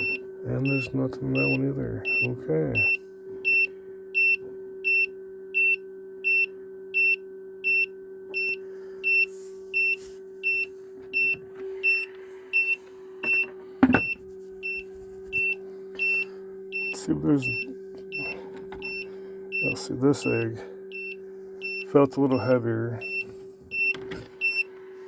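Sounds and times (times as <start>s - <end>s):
incubator alarm beeping: 0.0s - 25.0s
low hum: 0.0s - 25.0s
knock: 13.8s - 14.2s.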